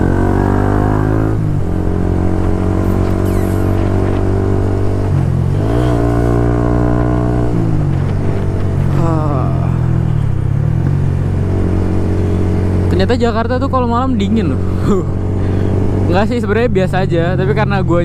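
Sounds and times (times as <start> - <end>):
motorcycle engine changing gears: 0.0 - 13.6.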